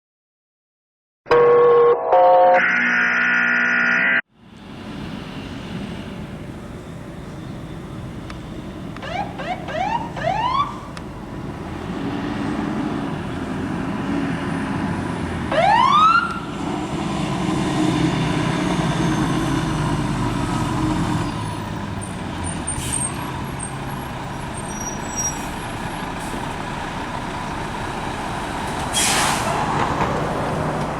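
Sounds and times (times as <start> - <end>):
diesel engine rumble: 4.3 - 30.9
fire truck siren whoops: 9.0 - 10.9, 15.5 - 16.6.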